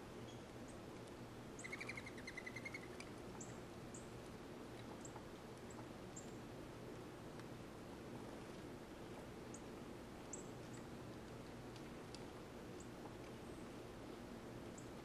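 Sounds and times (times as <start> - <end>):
low background hum: 0.0 - 15.0
songbird rapid trill: 1.6 - 4.0.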